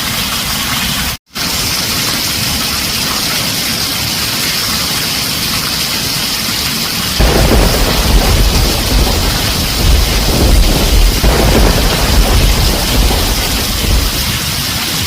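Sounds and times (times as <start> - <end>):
heavy rain on tin roof: 0.0 - 15.0
thunder rumbling: 7.2 - 15.0.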